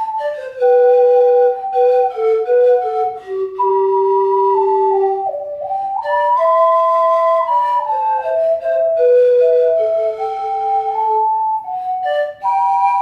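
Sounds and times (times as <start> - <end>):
ocarina melody: 0.0 - 13.0
pan flute melody: 0.0 - 13.0.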